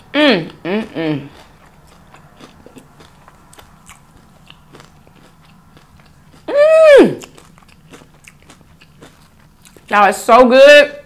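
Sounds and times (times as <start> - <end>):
person humming mmm: 0.0 - 1.5, 6.5 - 7.4
person chewing crunchy food: 0.0 - 10.0.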